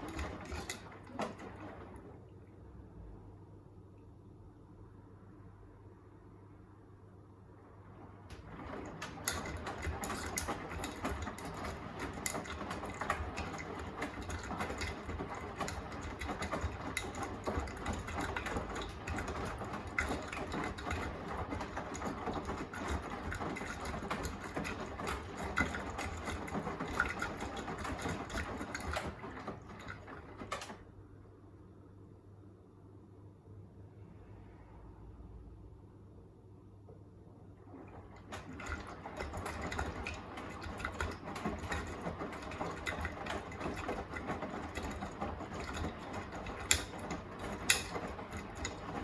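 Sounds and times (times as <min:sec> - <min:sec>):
washing machine load tumbling: 0:00.0 - 0:02.5, 0:07.6 - 0:31.2, 0:37.3 - 0:49.0.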